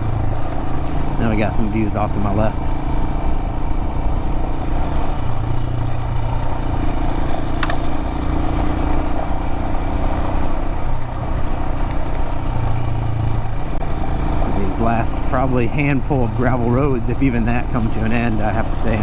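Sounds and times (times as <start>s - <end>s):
motorcycle engine running: 0.0s - 19.0s
road and wind noise: 0.0s - 19.0s
sharp tick: 7.5s - 8.4s.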